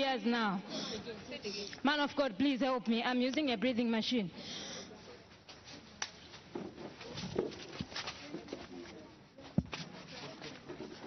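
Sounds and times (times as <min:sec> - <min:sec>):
faint indistinct voices: 0:04.4 - 0:11.0.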